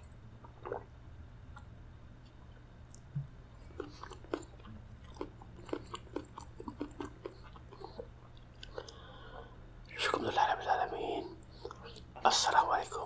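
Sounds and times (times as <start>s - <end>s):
man chewing: 1.6s - 10.0s.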